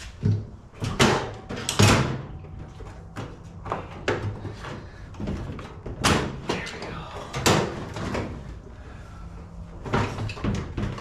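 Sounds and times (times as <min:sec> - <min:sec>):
clunks and knocks in metal cabinet: 0:00.2 - 0:08.5, 0:09.8 - 0:11.0.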